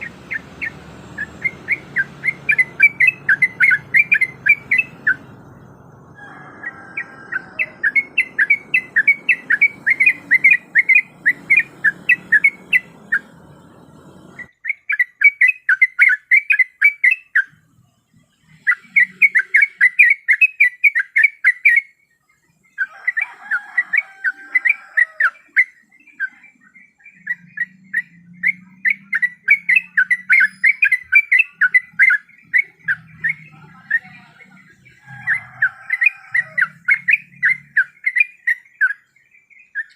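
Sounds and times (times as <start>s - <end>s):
background hum: 0.0s - 14.7s
bird chirping in fast runs: 0.0s - 17.5s.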